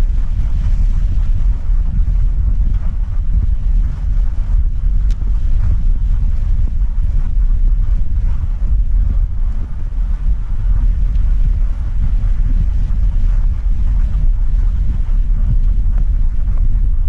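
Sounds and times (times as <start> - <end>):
vehicle driving low rumble: 0.0 - 17.0
wind buffeting microphone: 0.0 - 17.0.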